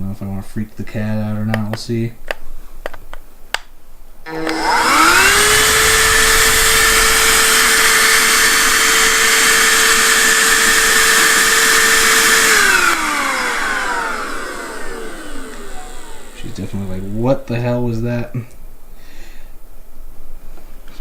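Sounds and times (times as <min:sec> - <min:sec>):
handheld vacuum cleaner running: 0:04.3 - 0:17.1.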